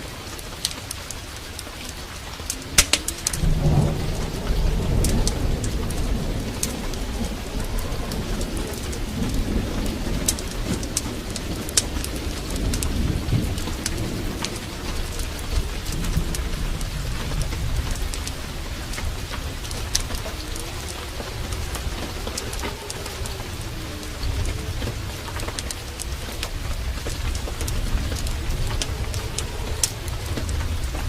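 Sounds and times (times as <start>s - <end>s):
heavy rain: 0.0s - 31.0s
low rumble: 2.3s - 31.0s
sharp ticks: 2.5s - 3.8s.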